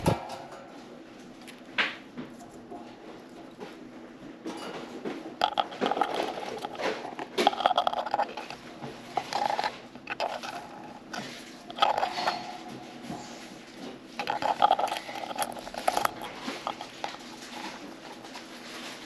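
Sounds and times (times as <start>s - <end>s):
birds cracking seeds: 5.4s - 19.0s.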